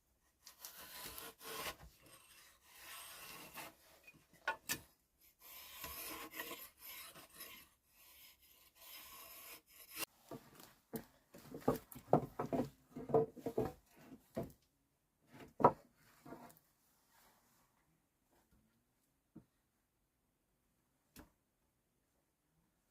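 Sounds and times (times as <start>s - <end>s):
rasping scrape on wood: 0.4s - 3.9s, 5.2s - 10.1s.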